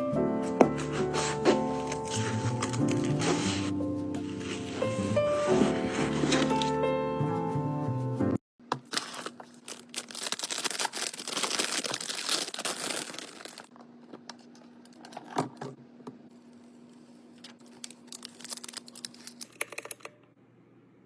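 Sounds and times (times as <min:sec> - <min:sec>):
plastic packaging crinkling and tearing: 0:01.2 - 0:06.7, 0:08.8 - 0:13.7, 0:17.4 - 0:19.4.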